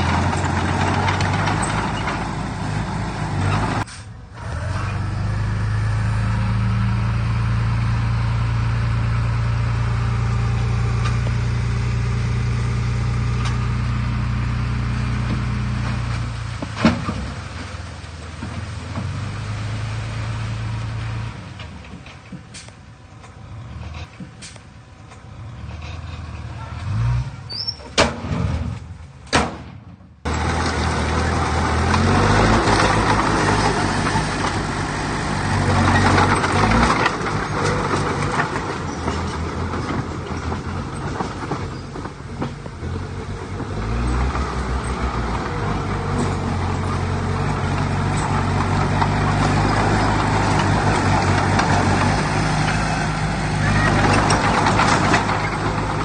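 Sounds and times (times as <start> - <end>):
heavy machinery diesel engine: 0.0 - 56.0.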